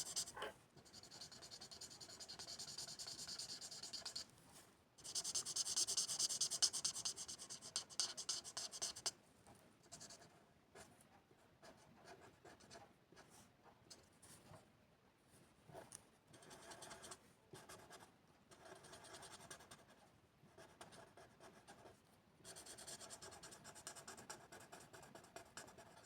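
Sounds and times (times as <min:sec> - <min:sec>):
scratchy colouring strokes on paper: 0:00.0 - 0:04.3, 0:05.0 - 0:09.1.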